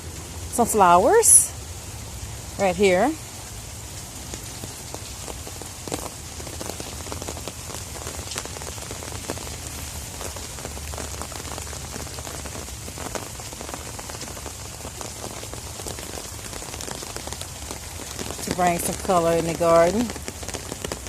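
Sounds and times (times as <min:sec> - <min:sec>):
raindrops tapping close by: 0:00.0 - 0:21.0
steady rain falling: 0:00.0 - 0:21.0.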